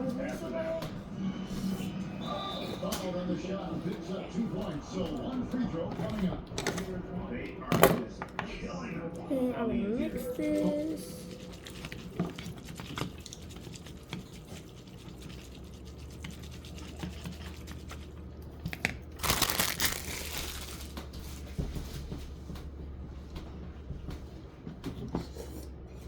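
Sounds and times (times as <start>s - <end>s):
steady low hum: 0.0s - 26.0s
noodles rustling in a bowl: 19.0s - 21.5s.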